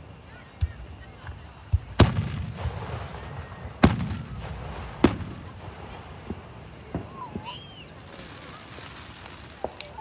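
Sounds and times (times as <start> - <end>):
firework bangs with rumbling tail: 1.7 - 7.6.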